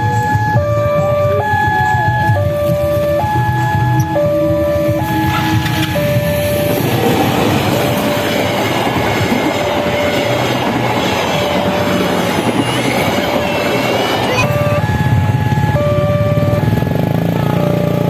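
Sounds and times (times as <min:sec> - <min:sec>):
train wheels clattering on rails: 0:02.0 - 0:14.4.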